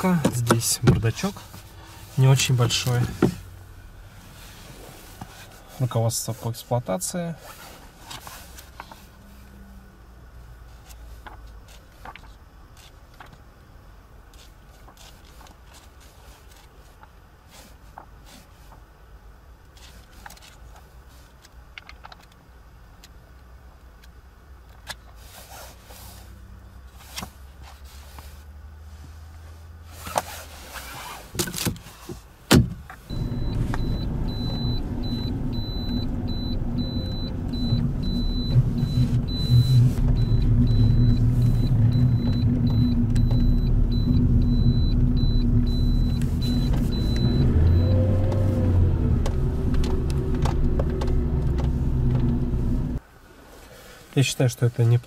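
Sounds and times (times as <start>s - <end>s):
car engine starting and idling: 0.0s - 6.2s, 32.8s - 53.0s.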